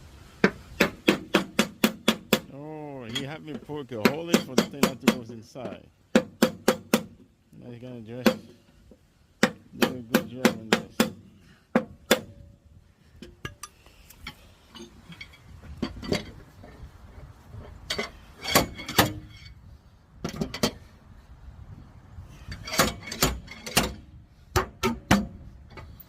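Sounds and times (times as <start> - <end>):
metal tools clinking on car body: 3.0 - 5.8, 13.2 - 16.4, 17.8 - 19.6, 22.5 - 24.0.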